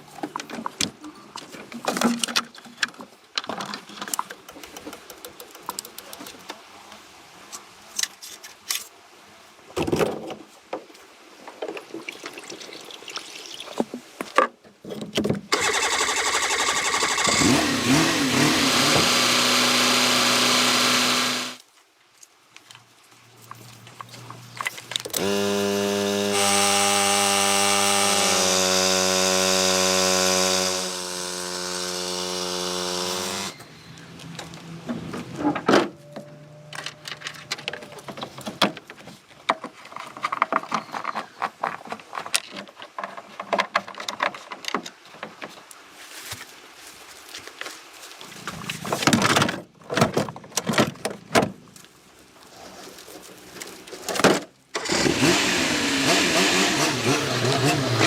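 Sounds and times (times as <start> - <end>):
motor running: 15.5 - 21.6, 25.2 - 33.6.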